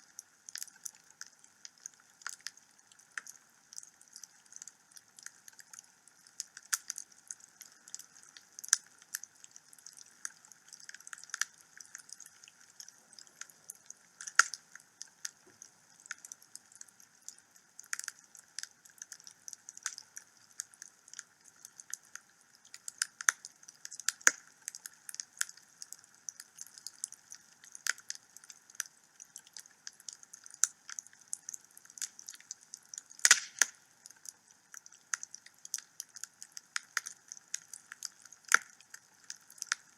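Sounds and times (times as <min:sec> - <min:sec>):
soft fire hiss: 0:00.0 - 0:39.9
wood fire crackling and popping: 0:00.5 - 0:39.9.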